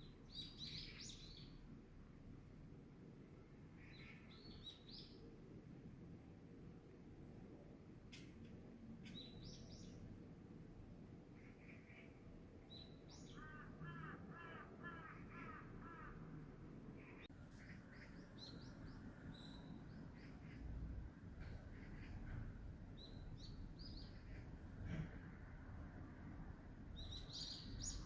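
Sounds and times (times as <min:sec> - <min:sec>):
small birds chirping: 0:00.0 - 0:01.6, 0:09.0 - 0:10.1, 0:17.0 - 0:24.8, 0:26.9 - 0:28.0
crow cawing: 0:13.4 - 0:16.3.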